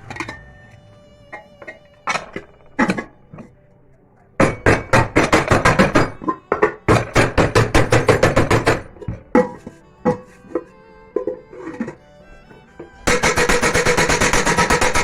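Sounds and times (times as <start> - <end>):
hammer blows on metal: 4.4 - 10.6, 13.0 - 15.0.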